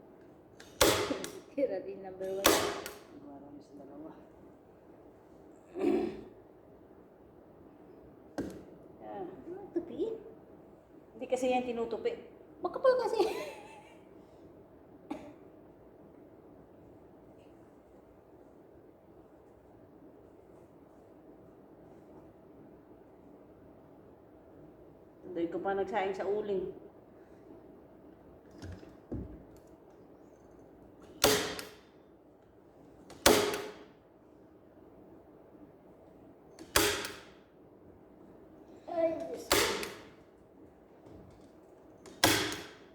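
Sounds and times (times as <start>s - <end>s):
staple gun cracks with air hiss: 0.6s - 1.5s, 2.3s - 3.1s, 31.0s - 31.9s, 33.0s - 34.0s, 36.6s - 37.4s, 39.5s - 40.2s, 42.0s - 42.9s
person coughing: 5.7s - 6.4s, 15.1s - 15.5s.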